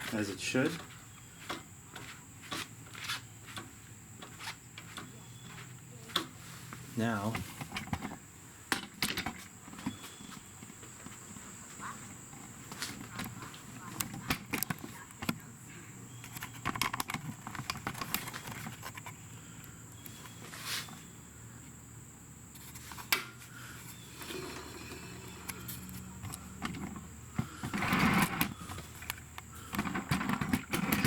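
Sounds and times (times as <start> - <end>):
tools and parts clicking and knocking: 7.6 - 10.0, 16.2 - 19.2, 26.2 - 31.0.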